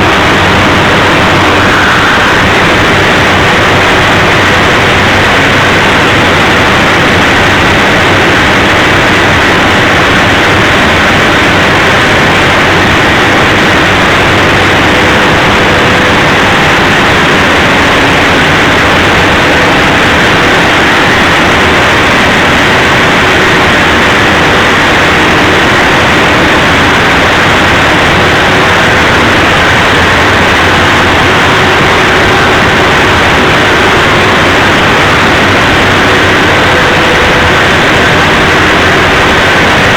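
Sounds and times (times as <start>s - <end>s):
diesel generator engines running: 0.0s - 39.9s.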